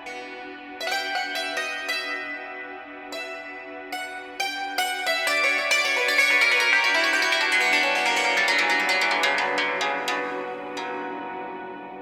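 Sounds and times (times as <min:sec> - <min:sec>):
hammered dulcimer playing: 0:03.2 - 0:11.8.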